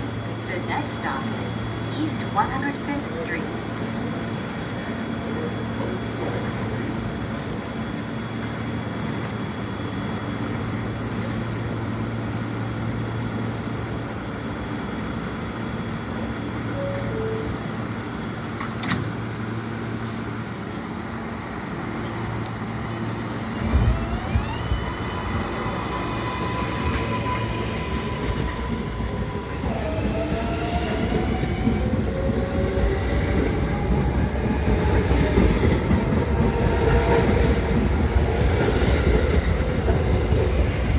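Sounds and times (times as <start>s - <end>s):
train equipment humming: 15.1s - 40.9s.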